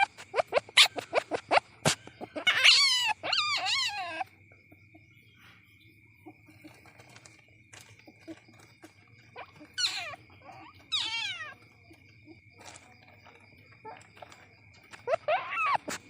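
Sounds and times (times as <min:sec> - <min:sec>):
civet mewing calls: 0:00.0 - 0:05.3, 0:06.2 - 0:16.0.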